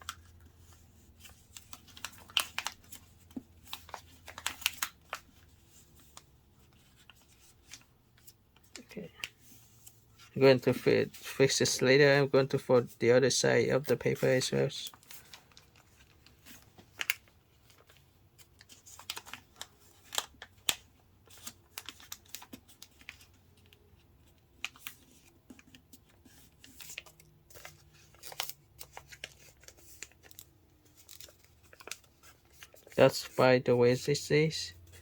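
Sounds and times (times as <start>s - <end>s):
paper rustling and crackling: 0.0s - 11.3s, 13.8s - 33.5s.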